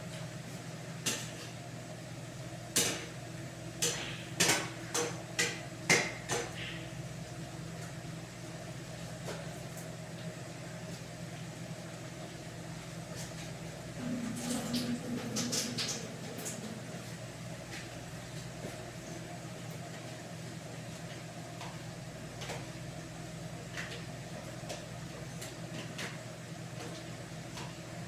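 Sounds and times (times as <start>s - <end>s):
steady low hum: 13.6s - 19.4s.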